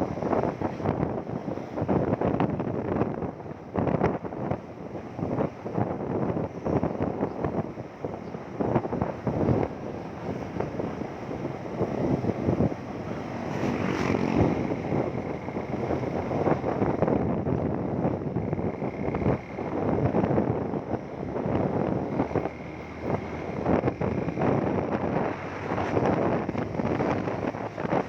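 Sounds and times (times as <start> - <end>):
road noise: 0.0 - 28.0
wind buffeting microphone: 0.0 - 28.0
motorcycle engine: 8.7 - 28.0.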